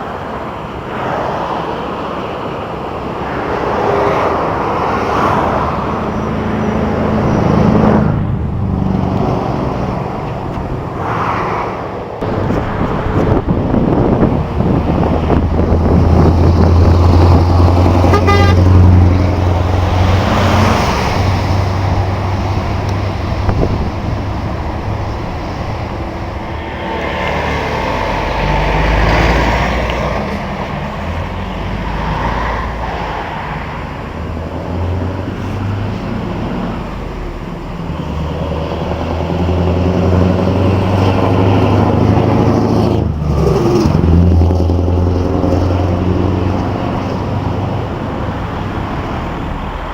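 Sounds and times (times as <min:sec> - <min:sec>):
truck engines droning: 0:00.0 - 0:49.9
truck horn toots: 0:17.8 - 0:19.3.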